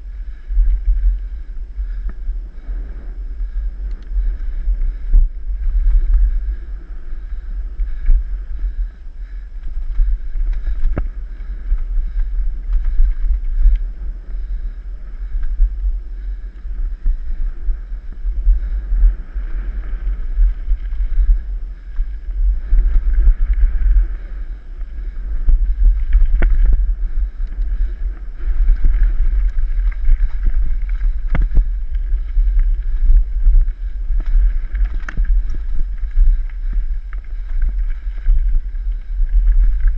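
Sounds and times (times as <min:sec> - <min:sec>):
wind buffeting microphone: 0:00.0 - 0:39.9
bike knocking over rough trail: 0:09.6 - 0:13.9.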